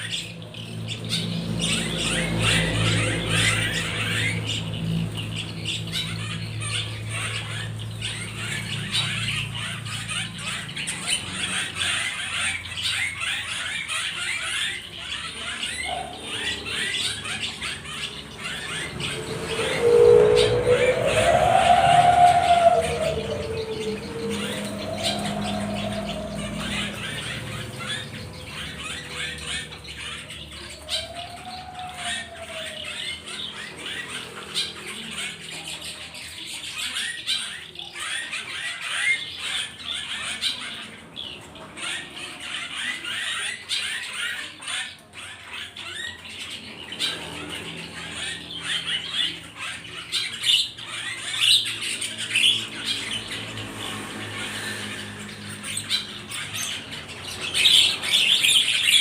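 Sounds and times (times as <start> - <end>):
birds chirping and squawking: 0.0 - 59.0.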